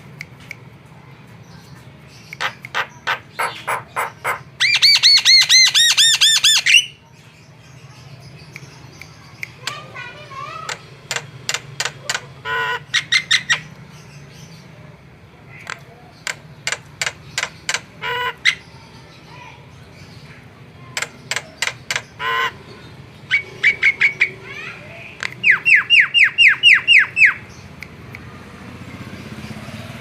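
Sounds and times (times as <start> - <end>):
bird clicking and squawking: 2.1 - 6.9, 8.5 - 13.8, 15.5 - 18.7, 20.8 - 22.6, 25.2 - 28.3.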